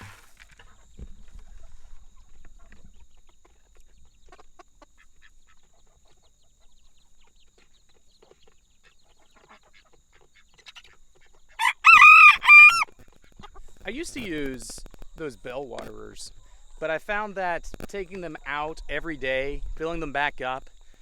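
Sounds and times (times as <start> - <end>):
rooster crowing: 11.6 - 12.9.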